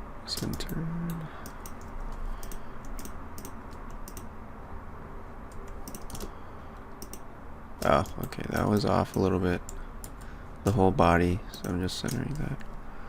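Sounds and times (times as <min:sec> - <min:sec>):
low background hum: 0:00.0 - 0:13.0
keyboard keys clicking: 0:01.4 - 0:04.3, 0:05.6 - 0:06.3, 0:07.0 - 0:07.2.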